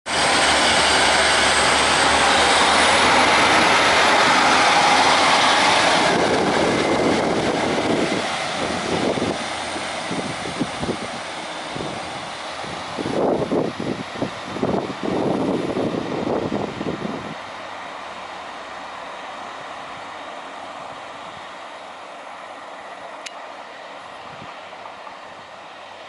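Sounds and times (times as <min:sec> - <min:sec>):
gusty rumble: 0:00.1 - 0:20.2
train passing with rushing noise: 0:00.1 - 0:26.0.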